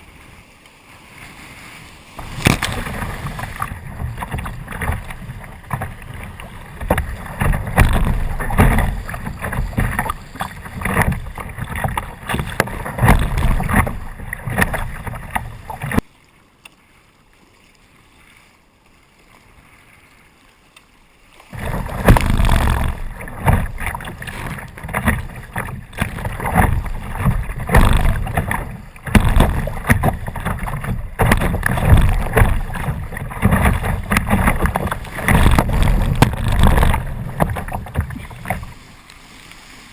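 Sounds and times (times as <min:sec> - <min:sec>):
water splashing and rushing: 0:00.0 - 0:39.9
wind buffeting microphone: 0:21.6 - 0:38.8.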